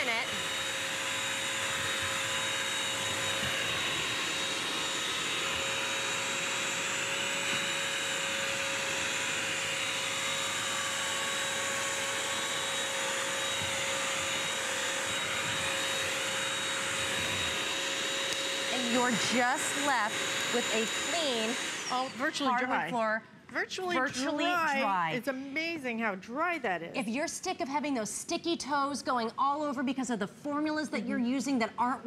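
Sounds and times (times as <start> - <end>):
wet vacuum motor whine: 0.0 - 22.9.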